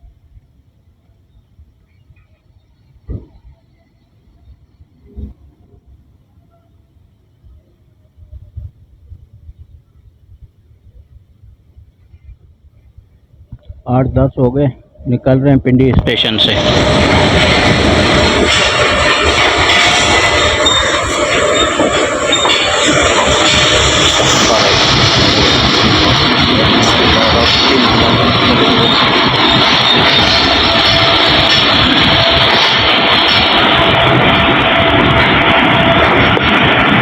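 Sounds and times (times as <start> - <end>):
train wheels on rails: 14.4 - 37.0.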